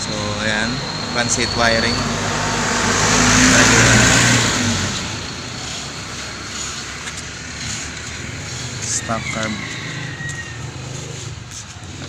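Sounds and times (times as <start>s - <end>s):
motor vehicle passing by: 0.0s - 12.0s.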